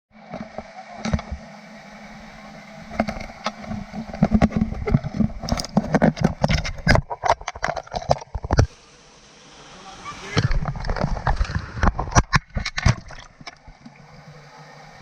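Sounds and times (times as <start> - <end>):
water rushing: 0.2 - 15.0
knocks and splashes: 10.2 - 13.9.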